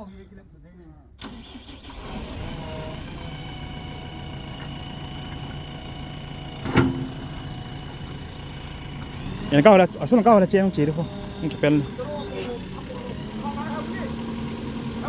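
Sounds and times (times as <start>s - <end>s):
diesel engine running: 2.2s - 15.0s
sharp metallic knock: 6.6s - 7.8s.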